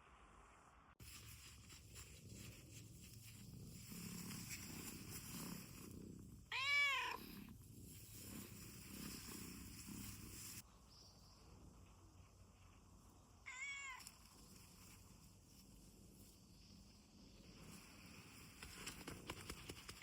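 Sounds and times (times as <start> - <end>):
cat purring: 1.0 - 20.0
cat meowing: 6.5 - 7.3, 13.5 - 14.1.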